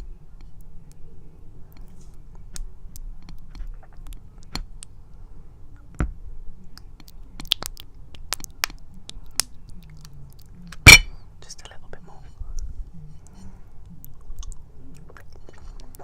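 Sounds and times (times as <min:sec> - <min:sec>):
sticky chewing clicks and smacks: 0:01.8 - 0:04.9, 0:06.7 - 0:10.8, 0:13.8 - 0:16.0.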